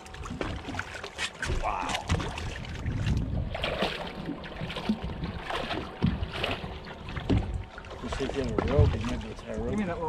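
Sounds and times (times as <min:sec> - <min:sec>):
water splashing and sloshing: 0:00.0 - 0:10.0
sharp short splashes: 0:00.3 - 0:09.4
wind buffeting microphone: 0:02.0 - 0:10.0.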